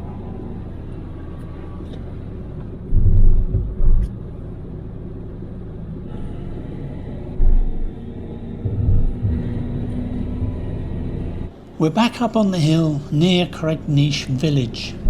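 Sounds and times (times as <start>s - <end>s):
van engine and road rumble: 0.0s - 15.0s
low thuds: 2.8s - 4.2s, 7.4s - 10.9s.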